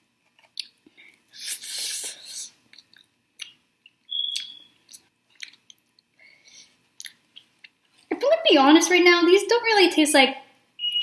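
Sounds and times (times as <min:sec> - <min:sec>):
close chewing with mouth clicks: 0:01.7 - 0:06.1, 0:07.0 - 0:08.1.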